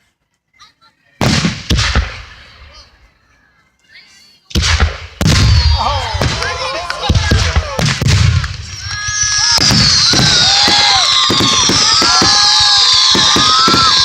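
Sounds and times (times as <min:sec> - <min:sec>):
firework shells booming: 0:04.6 - 0:14.0
firework crackles: 0:05.2 - 0:14.0
firework whistles falling: 0:05.4 - 0:05.8, 0:08.7 - 0:14.0.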